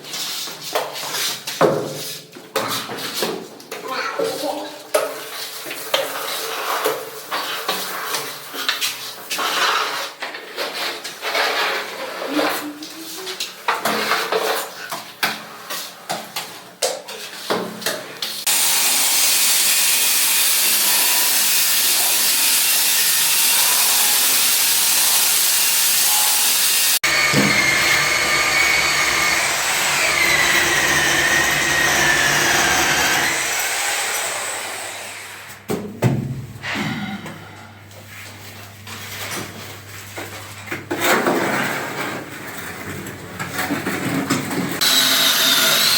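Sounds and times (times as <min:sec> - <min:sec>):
electric machine running: 0:18.5 - 0:35.6, 0:44.8 - 0:45.9.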